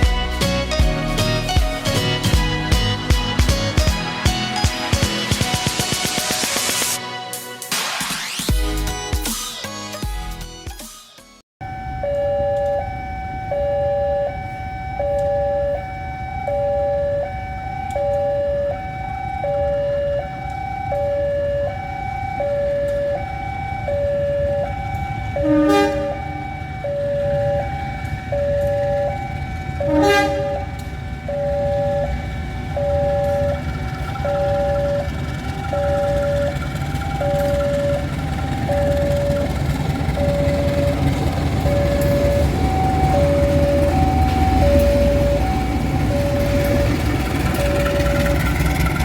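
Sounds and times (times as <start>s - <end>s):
low rumble of railway machinery: 11.6s - 49.0s
two-tone warning alarm: 11.6s - 49.0s.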